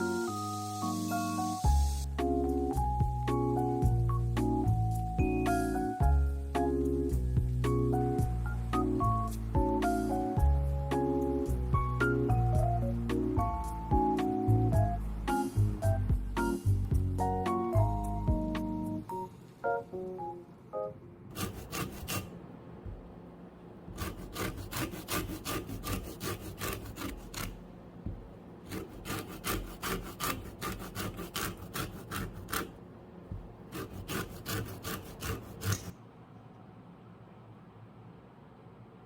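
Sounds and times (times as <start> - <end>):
lemon rasping on a grater: 21.3 - 22.4, 23.9 - 27.6, 28.7 - 32.8, 33.7 - 35.9.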